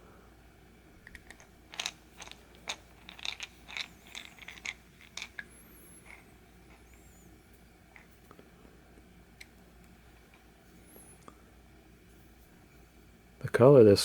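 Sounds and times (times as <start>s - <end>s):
metal parts clicking and tapping: 1.0s - 7.0s.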